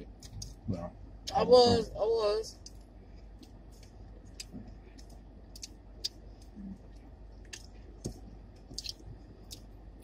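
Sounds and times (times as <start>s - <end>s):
person chewing crunchy food: 2.6s - 10.0s.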